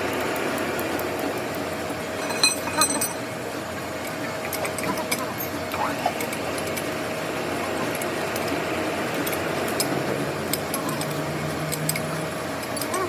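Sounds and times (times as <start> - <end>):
metalworking machine running: 0.0 - 13.0
light metallic clinks: 2.2 - 3.2.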